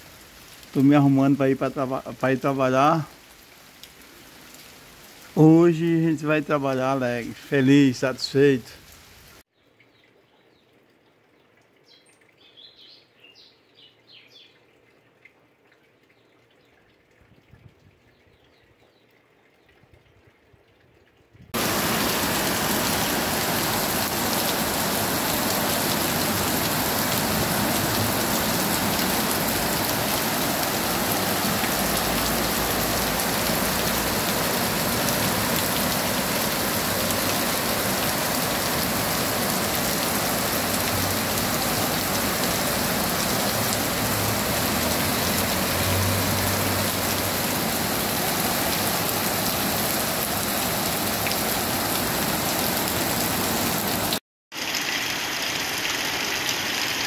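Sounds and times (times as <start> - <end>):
heavy rain pouring: 0.0 - 9.4, 21.6 - 57.0.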